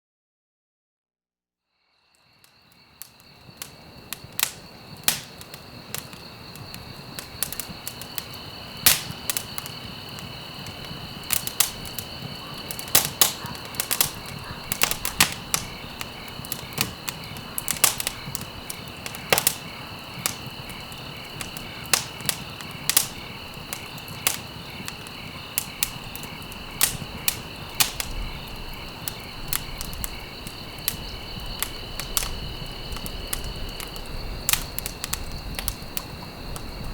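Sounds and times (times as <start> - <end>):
insect trill: 1.7 - 36.9
campfire crackling and popping: 2.4 - 36.9.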